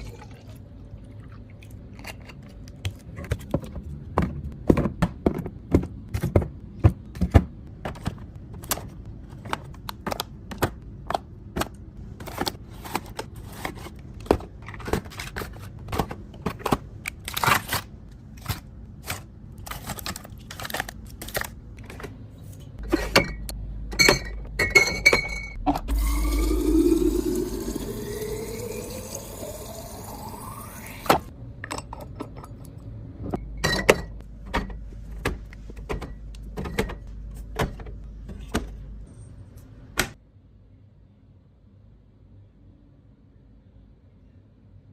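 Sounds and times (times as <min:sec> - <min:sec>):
food containers clicking and clinking: 0:01.9 - 0:17.8.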